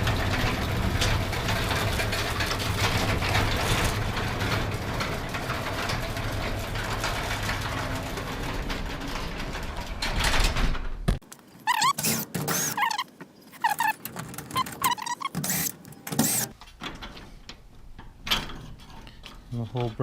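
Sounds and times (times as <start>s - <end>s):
rollers rattling in track: 0.0s - 10.6s
garage door motor hum: 0.0s - 11.0s, 11.7s - 13.0s, 13.6s - 16.6s.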